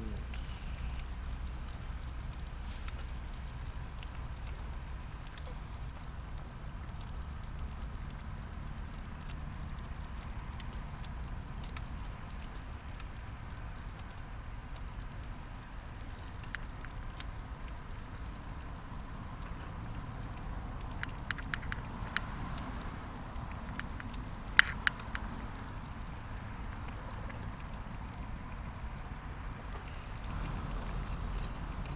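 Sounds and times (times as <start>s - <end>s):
steady low rumble: 0.0s - 5.2s
wood fire crackling: 0.0s - 31.9s.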